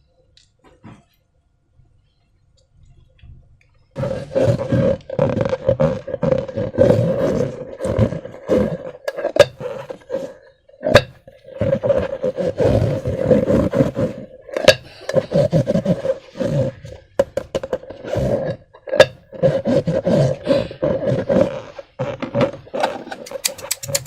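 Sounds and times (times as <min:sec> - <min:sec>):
balloon neck buzzing: 0:04.0 - 0:09.9.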